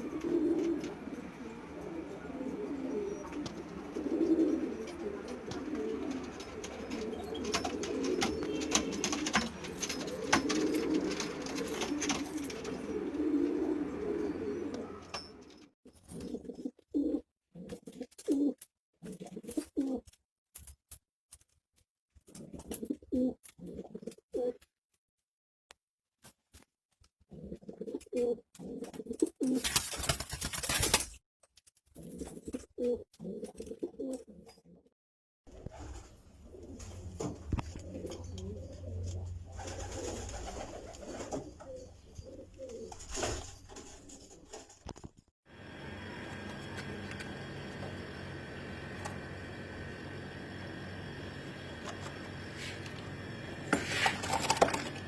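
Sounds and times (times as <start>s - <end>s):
pigeons cooing: 0.0s - 15.6s, 35.5s - 44.7s, 45.6s - 55.0s.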